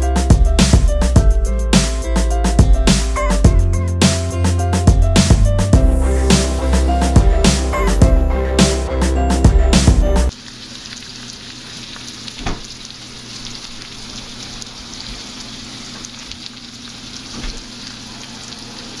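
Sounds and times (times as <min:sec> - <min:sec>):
food sizzling in a skillet: 0:10.3 - 0:19.0.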